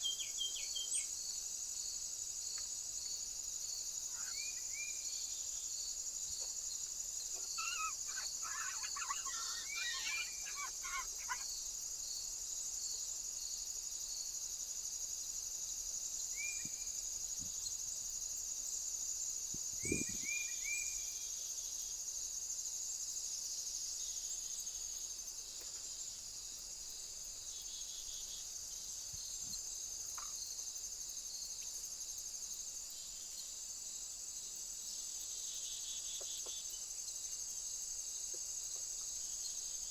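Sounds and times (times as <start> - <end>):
bird chirping: 0.0 - 1.2, 7.2 - 11.6
insects chorus: 0.0 - 39.9.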